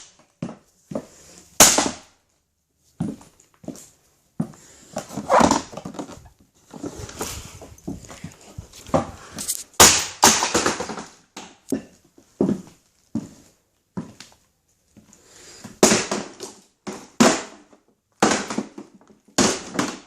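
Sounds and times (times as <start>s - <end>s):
plastic cracking under shoes: 5.0s - 11.9s, 15.8s - 20.0s.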